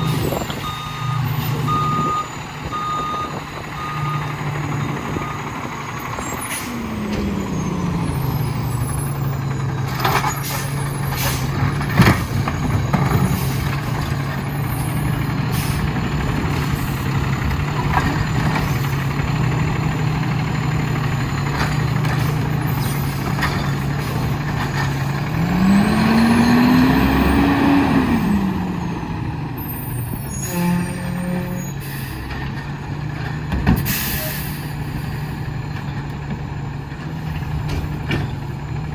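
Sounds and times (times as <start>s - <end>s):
air brake hisses: 10.4s - 11.5s, 33.8s - 34.7s.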